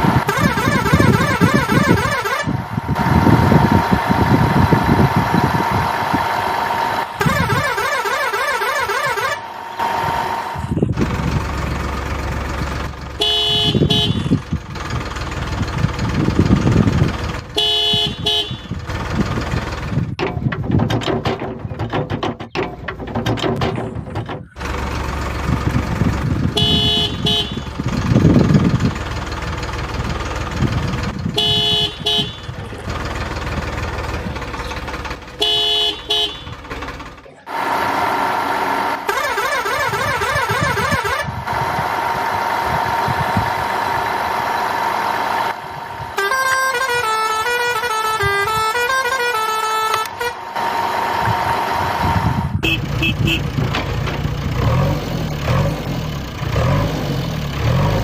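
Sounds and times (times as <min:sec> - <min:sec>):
toy tractor horn toots: 0:00.0 - 0:03.9, 0:07.0 - 0:10.5, 0:13.2 - 0:14.5, 0:17.5 - 0:18.8, 0:26.5 - 0:27.8, 0:31.2 - 0:33.1, 0:35.3 - 0:36.9, 0:38.8 - 0:41.8, 0:46.1 - 0:51.3, 0:52.4 - 0:53.6
engine rumble: 0:00.0 - 0:58.0.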